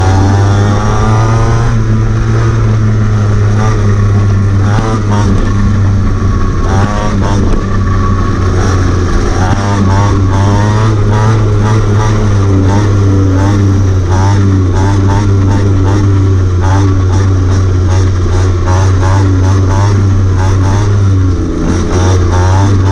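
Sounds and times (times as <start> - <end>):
pit bike engine revving: 0.0 - 22.9.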